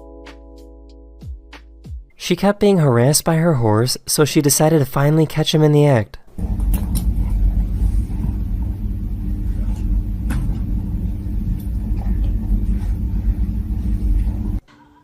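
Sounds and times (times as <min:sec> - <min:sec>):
low engine rumble: 0:06.4 - 0:14.6.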